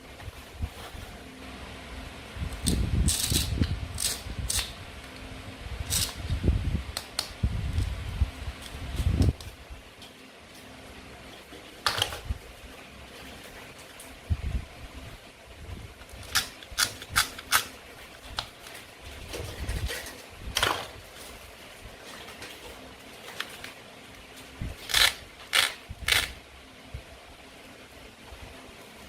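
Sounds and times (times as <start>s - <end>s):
toy food pieces clicking: 24.9s - 26.4s.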